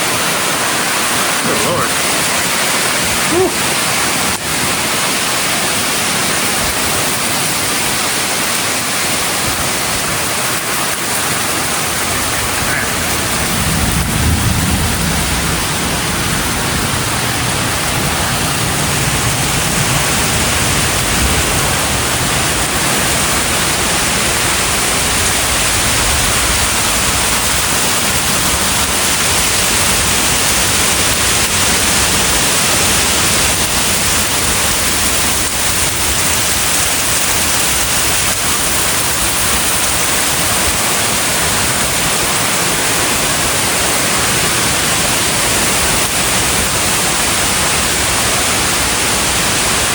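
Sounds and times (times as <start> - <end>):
heavy rain pouring: 0.0 - 49.9
low thunder rumble: 11.6 - 49.9.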